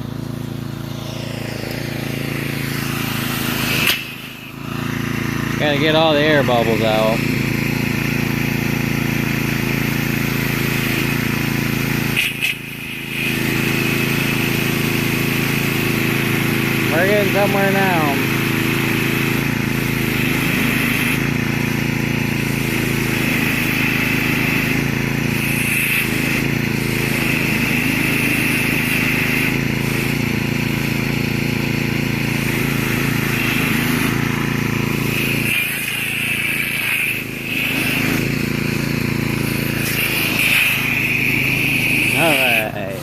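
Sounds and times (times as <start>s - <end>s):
pressure washer motor drone: 0.0s - 43.0s
hiss of spraying water: 12.1s - 21.7s, 22.4s - 31.0s, 32.4s - 43.0s.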